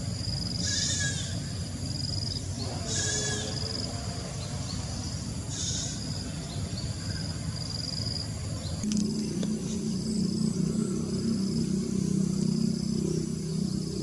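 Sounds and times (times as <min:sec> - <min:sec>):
low motor hum: 0:00.0 - 0:14.0
bird chattering call: 0:02.6 - 0:03.8.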